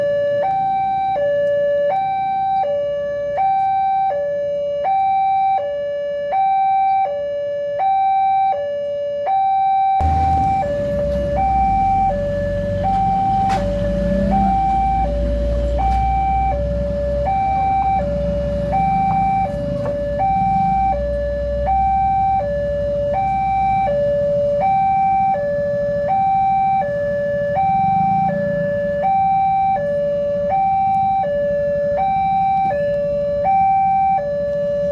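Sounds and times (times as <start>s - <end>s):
two-tone crossing alarm: 0.0s - 34.9s
low rumble: 10.0s - 22.9s.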